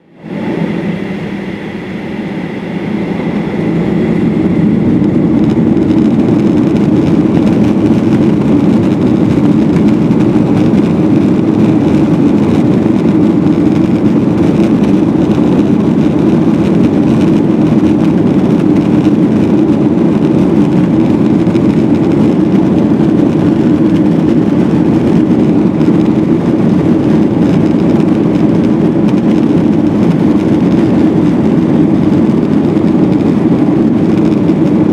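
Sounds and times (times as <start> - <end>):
faint high whine: 0.0 - 7.4
jet engines roaring: 0.0 - 34.9.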